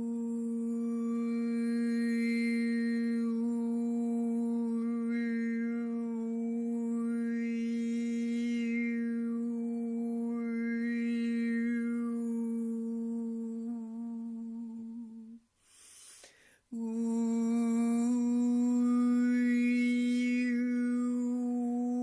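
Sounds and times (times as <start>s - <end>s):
man humming a low note: 0.0s - 15.4s, 16.8s - 22.0s
man breathing in: 15.6s - 16.7s.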